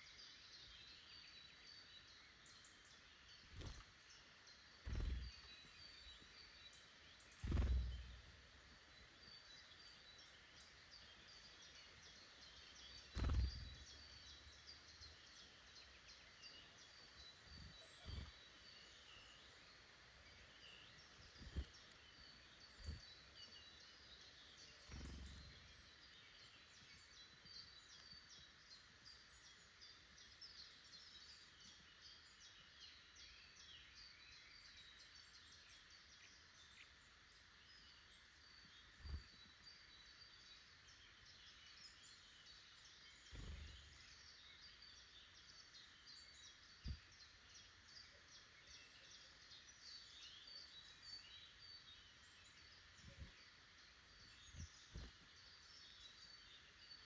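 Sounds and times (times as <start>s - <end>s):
small birds singing: 0.0s - 57.0s
soft low thumps: 7.4s - 8.3s.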